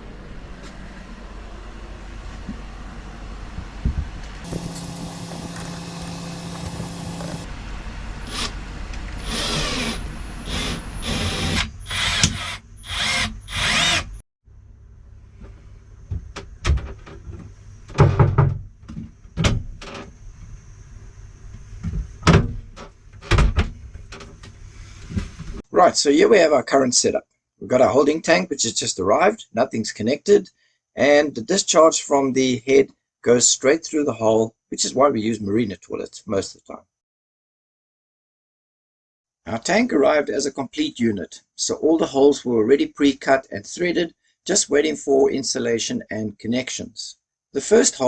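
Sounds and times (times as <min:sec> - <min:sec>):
power drill running: 0:04.4 - 0:07.5.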